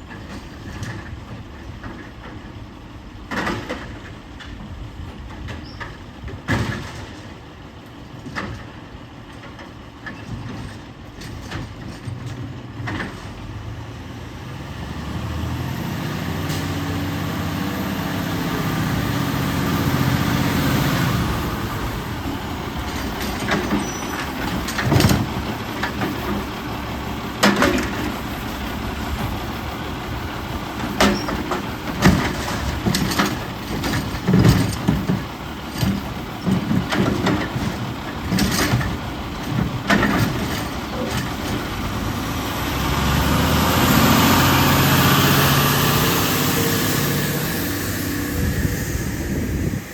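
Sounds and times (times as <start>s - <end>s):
garbage truck engine revving: 12.9s - 49.9s
sharp metallic clanks and bangs: 22.8s - 26.5s, 27.4s - 28.3s, 30.8s - 41.8s.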